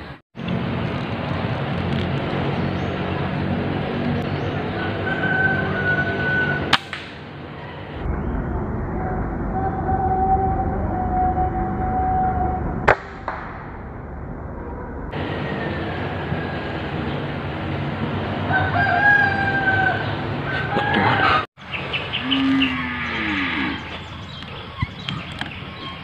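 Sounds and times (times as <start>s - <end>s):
outdoor background noise: 0.0s - 26.0s
low falling animal calls: 7.5s - 12.9s, 13.7s - 17.4s, 18.5s - 26.0s
held pitched animal call: 22.2s - 24.8s.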